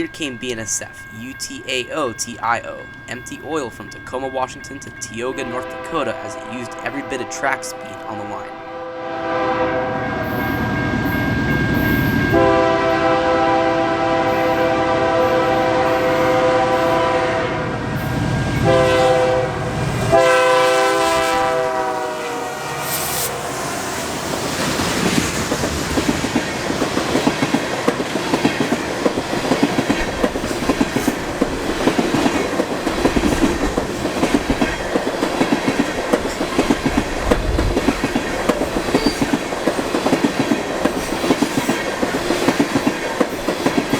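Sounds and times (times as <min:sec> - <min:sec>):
locomotive horn blasts: 0:05.4 - 0:10.3, 0:12.3 - 0:17.7, 0:18.6 - 0:23.6.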